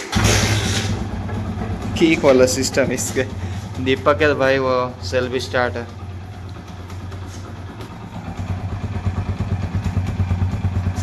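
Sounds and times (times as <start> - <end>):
motorcycle engine idling: 0.1 - 11.0.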